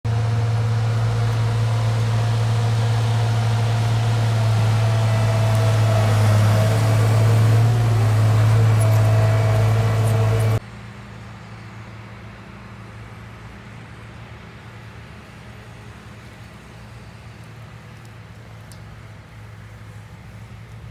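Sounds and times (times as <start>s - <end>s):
motor humming: 0.1s - 10.6s.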